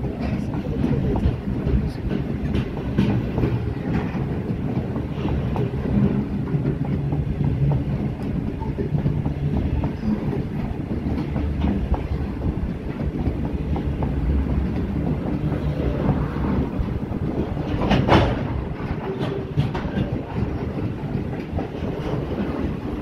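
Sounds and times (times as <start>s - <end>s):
freight train rumbling past: 0.0s - 23.0s
wheels clacking over rail joints: 0.0s - 23.0s.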